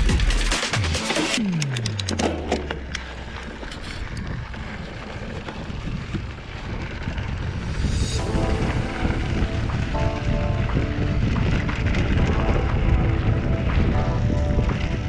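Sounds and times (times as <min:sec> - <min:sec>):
music: 0:00.0 - 0:01.5, 0:07.8 - 0:15.0
mountain bike trail noise: 0:01.2 - 0:15.0
wind on microphone: 0:03.8 - 0:15.0
deep tone sliding down: 0:07.1 - 0:15.0.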